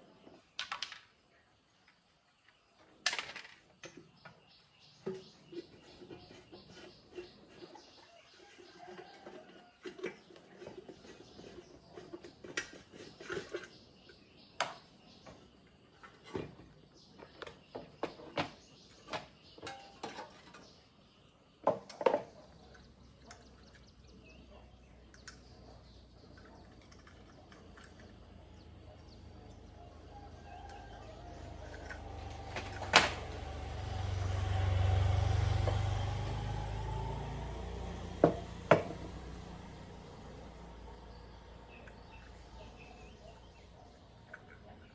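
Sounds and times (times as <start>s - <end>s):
vehicle passing rumble: 22.4s - 44.9s.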